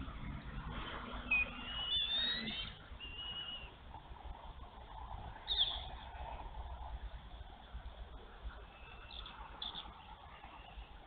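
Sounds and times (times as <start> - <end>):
high whistled bird calls: 1.2 - 3.8, 5.4 - 5.9, 8.7 - 11.0.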